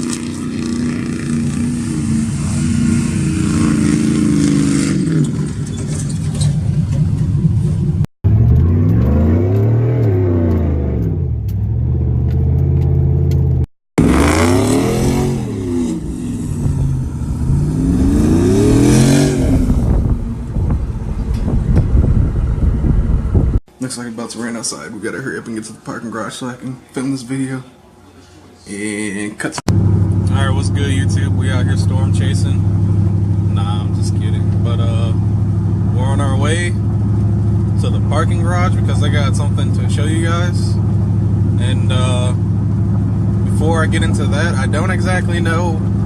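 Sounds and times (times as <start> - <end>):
truck engine revving: 0.0 - 23.6.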